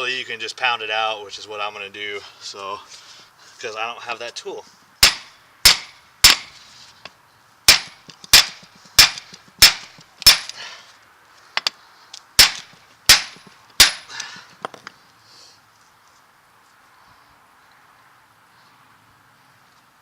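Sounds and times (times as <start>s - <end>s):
hammer blows on metal: 5.0s - 6.6s.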